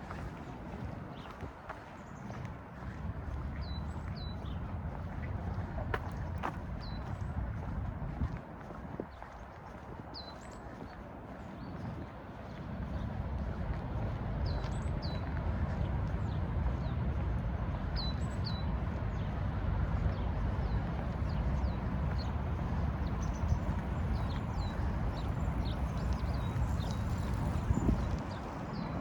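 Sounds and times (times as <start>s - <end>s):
steady low rushing noise: 15.8s - 29.0s
small birds chirping: 21.1s - 29.0s.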